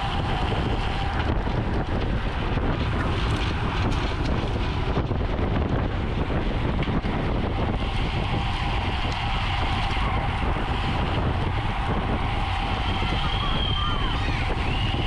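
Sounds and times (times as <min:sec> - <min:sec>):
tyre and road noise: 0:00.0 - 0:15.0
wind rushing over microphone: 0:00.0 - 0:15.0.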